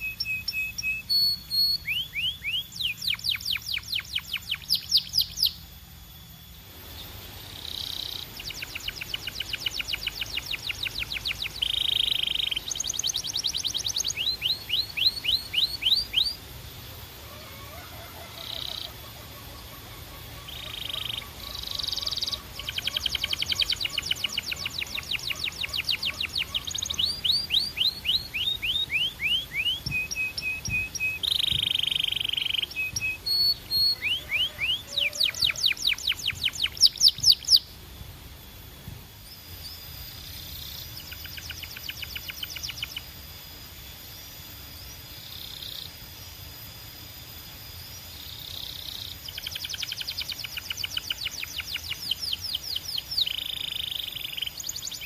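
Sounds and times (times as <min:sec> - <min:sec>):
canary singing trills: 0:00.0 - 0:37.8, 0:39.2 - 0:55.0.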